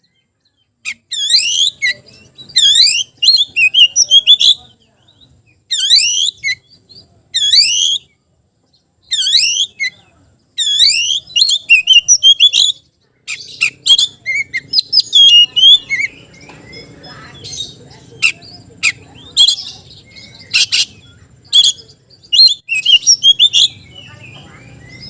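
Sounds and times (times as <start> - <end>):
bird chirps: 0.0 - 25.0
bird whistling: 0.9 - 4.6, 5.7 - 6.6, 7.4 - 8.1, 9.1 - 10.0, 10.6 - 25.0.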